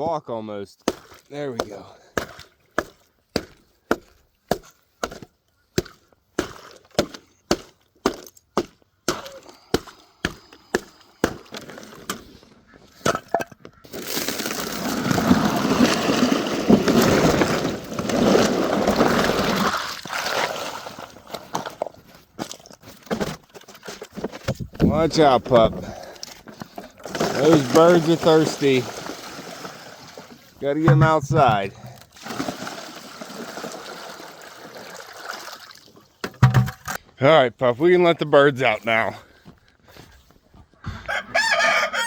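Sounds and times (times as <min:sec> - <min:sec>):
ice cracking under blows: 0:13.9 - 0:35.2.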